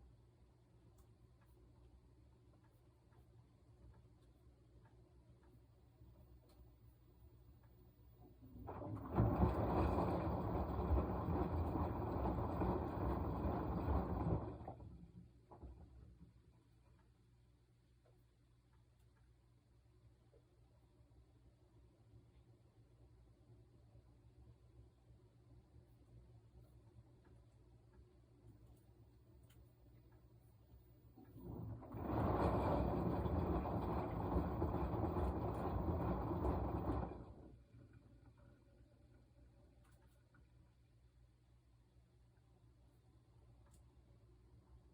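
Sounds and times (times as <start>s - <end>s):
washing machine drum churning: 8.3s - 16.3s, 31.2s - 37.7s
water and laundry sloshing: 8.3s - 16.4s, 31.2s - 38.4s.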